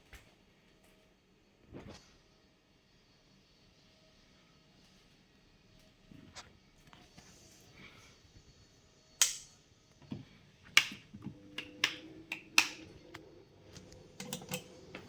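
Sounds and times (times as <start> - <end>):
faint steady computer hum: 0.0 - 15.0
switches and buttons clicking: 10.7 - 15.0.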